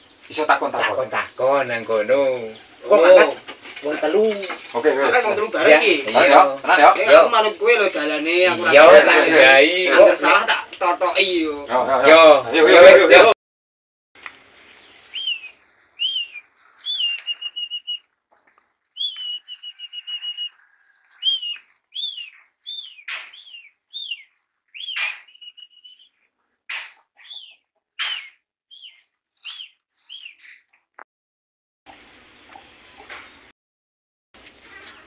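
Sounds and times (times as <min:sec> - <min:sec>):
songbird whistling and trilling: 0:15.1 - 0:18.1, 0:18.9 - 0:26.3, 0:27.2 - 0:30.6.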